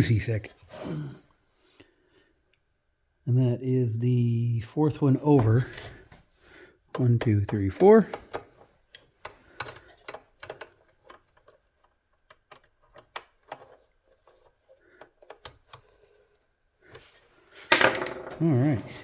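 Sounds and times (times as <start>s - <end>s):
screwdriver clicks and taps: 6.9s - 13.8s.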